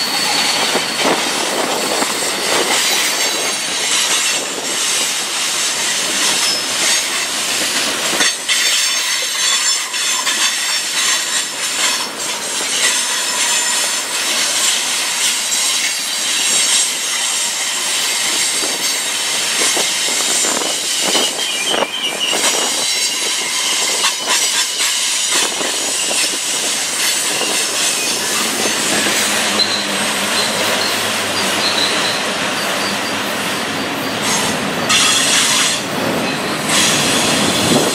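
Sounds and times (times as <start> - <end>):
train wheels squealing: 0.0 - 37.9
wheels clicking over rail joints: 0.2 - 21.4.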